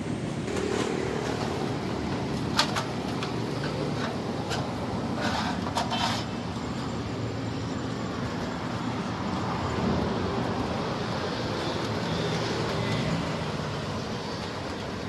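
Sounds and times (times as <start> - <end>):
excavator diesel engine rumbling: 0.0 - 15.0.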